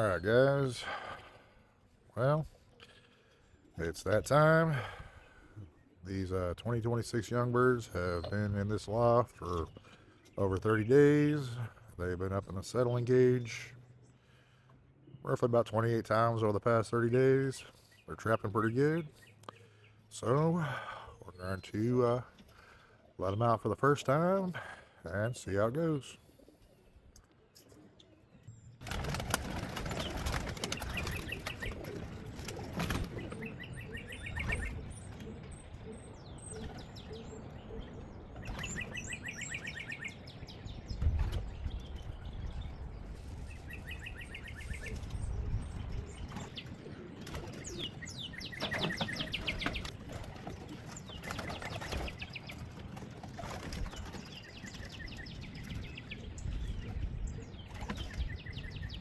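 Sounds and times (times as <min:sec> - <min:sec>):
pigeon wings flapping: 0:28.8 - 0:33.5, 0:49.4 - 0:54.4
high chirping calls: 0:33.0 - 0:41.0, 0:43.5 - 0:50.0.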